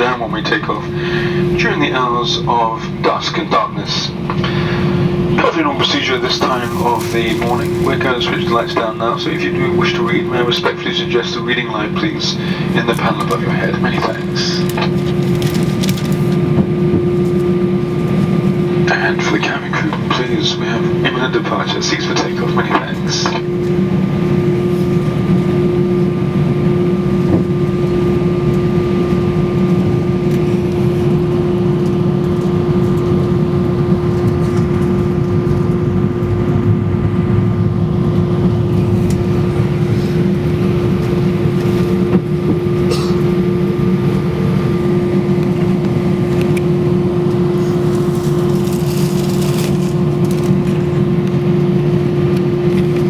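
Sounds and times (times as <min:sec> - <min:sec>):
jet engines low rumble: 0:00.0 - 0:53.0
steady cabin hum: 0:00.0 - 0:53.0.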